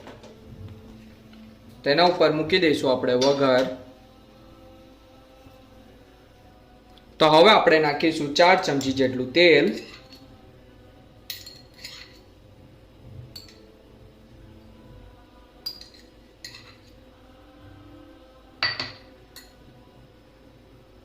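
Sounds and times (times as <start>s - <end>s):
metal spoon clinking on pan: 11.3s - 12.2s, 15.6s - 16.8s.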